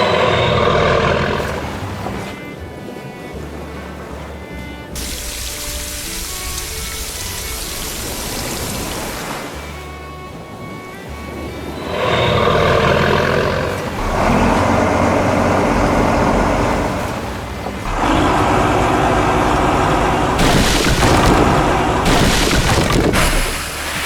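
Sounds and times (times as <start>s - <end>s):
heavy vehicle engine: 0.0s - 2.4s, 11.7s - 24.0s
hiss bursts: 5.0s - 9.1s, 17.9s - 24.0s.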